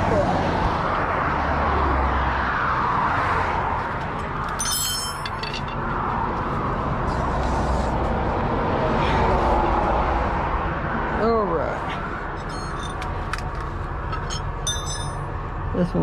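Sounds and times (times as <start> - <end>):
metallic clink: 4.5 - 5.8, 12.4 - 15.3.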